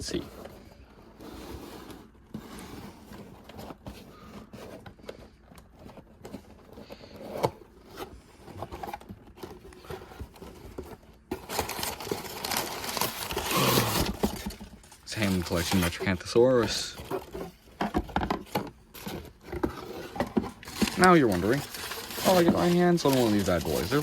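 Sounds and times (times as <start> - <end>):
packaging rustling and tearing: 0.0 - 24.0
scrapes and clicks of handling: 0.0 - 24.0.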